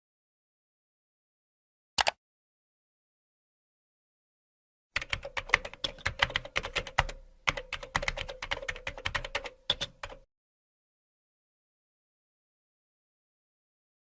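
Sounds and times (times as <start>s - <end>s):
typing on a keyboard: 5.0s - 10.3s.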